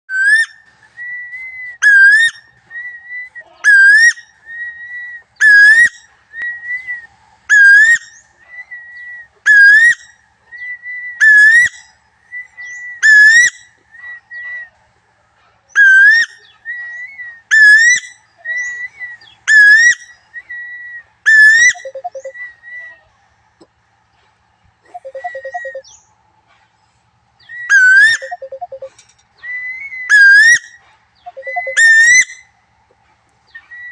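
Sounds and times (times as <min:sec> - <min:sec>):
bird whistling call: 0:00.1 - 0:14.8, 0:15.7 - 0:23.1, 0:24.9 - 0:26.1, 0:27.4 - 0:32.5, 0:33.5 - 0:33.9
soft level whistles: 0:00.1 - 0:14.8, 0:15.8 - 0:23.1, 0:24.9 - 0:26.0, 0:27.4 - 0:32.6, 0:33.5 - 0:33.9
low soft bird notes: 0:21.7 - 0:22.6, 0:24.0 - 0:26.2, 0:27.3 - 0:30.1, 0:31.2 - 0:32.0.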